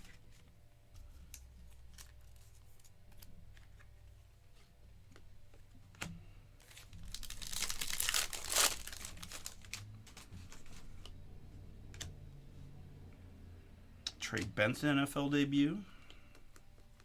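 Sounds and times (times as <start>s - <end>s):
foil wrapper crinkling: 6.7s - 10.8s.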